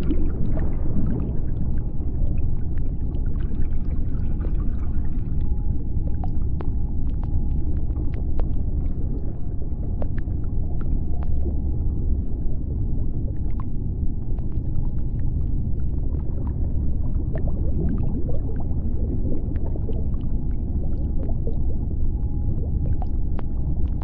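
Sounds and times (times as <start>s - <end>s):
deep underwater rumble: 0.0s - 24.0s
faint underwater clicks: 5.2s - 11.7s.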